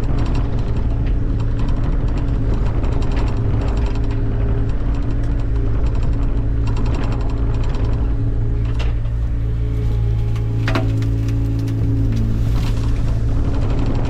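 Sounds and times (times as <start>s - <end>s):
machine engine running: 0.0s - 14.0s.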